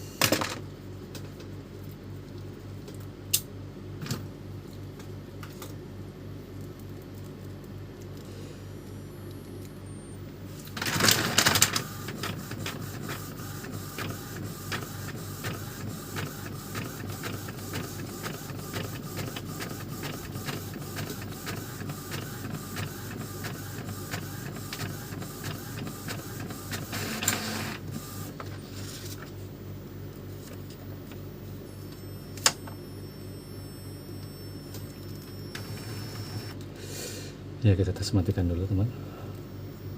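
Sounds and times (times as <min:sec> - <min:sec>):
printer mechanism running: 0:10.7 - 0:29.2, 0:35.2 - 0:36.6
printer clicks: 0:10.8 - 0:27.9.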